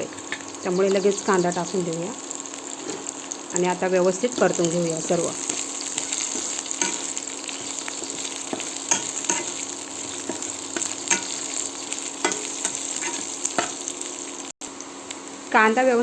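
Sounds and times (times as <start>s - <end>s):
onions sizzling in oil: 0.0s - 16.0s
spatula scraping a pan: 5.4s - 13.8s.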